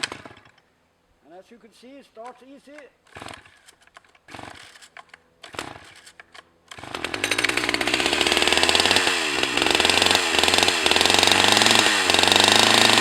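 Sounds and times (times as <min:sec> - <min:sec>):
chainsaw running at high revs: 0:03.1 - 0:03.6, 0:04.3 - 0:04.8, 0:05.5 - 0:06.0, 0:06.7 - 0:13.0.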